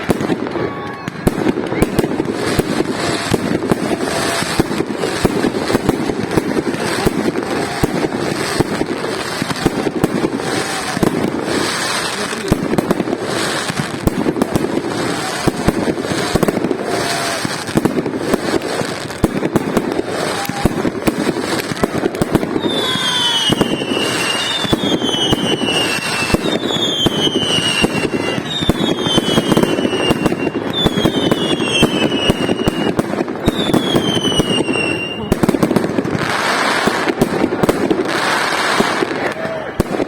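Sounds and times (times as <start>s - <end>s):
fireworks crackling and popping: 0.0s - 40.0s
high falling firework whistle: 14.5s - 17.8s, 20.0s - 35.4s, 38.1s - 40.0s.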